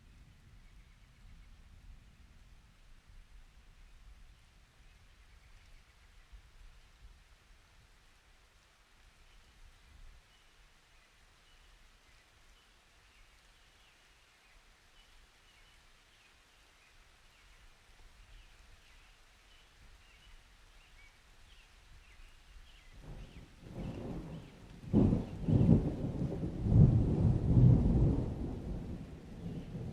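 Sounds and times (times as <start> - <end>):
soft storm hiss and rumble: 0.0 - 29.9
thunder rolling: 23.0 - 29.9.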